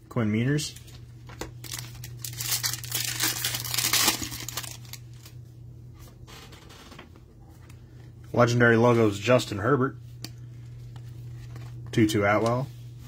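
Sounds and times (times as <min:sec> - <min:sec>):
foil wrapper tearing and crinkling: 0:01.6 - 0:05.3.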